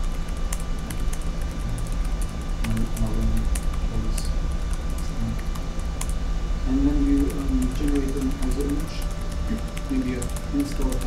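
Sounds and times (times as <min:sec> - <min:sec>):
keyboard typing: 0:00.0 - 0:06.2, 0:07.0 - 0:11.0
steady background hum: 0:00.0 - 0:11.0
person talking: 0:01.6 - 0:02.0, 0:02.6 - 0:04.4, 0:05.0 - 0:05.5, 0:06.7 - 0:11.0.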